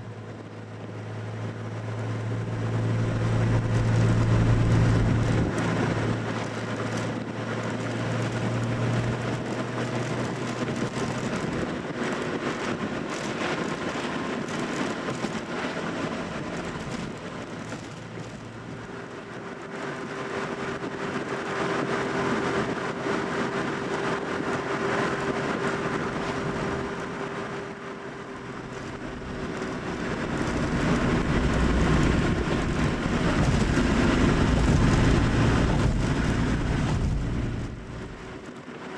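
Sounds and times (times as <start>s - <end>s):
car engine and tyre drone: 0.0s - 38.9s
low engine hum: 0.0s - 38.9s.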